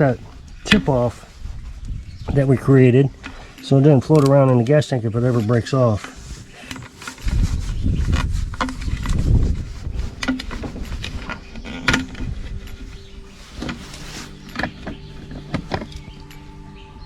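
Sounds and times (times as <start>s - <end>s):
clicks and knocks of plastic parts: 6.0s - 13.0s.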